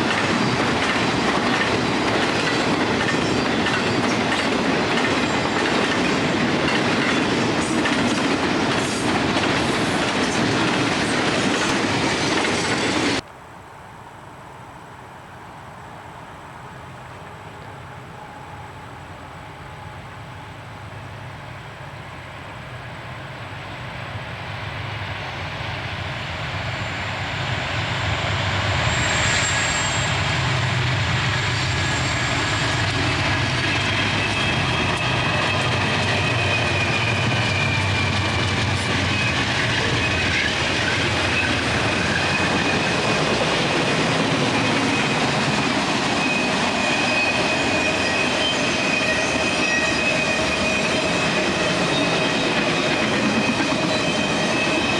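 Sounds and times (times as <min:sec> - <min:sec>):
train wheels rumbling on rail: 0:00.0 - 0:13.3, 0:16.0 - 0:54.9
high wheel squeal: 0:28.6 - 0:54.9.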